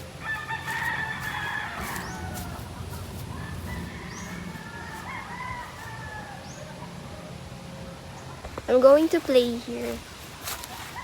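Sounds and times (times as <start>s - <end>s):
rooster crowing: 0.2s - 6.9s.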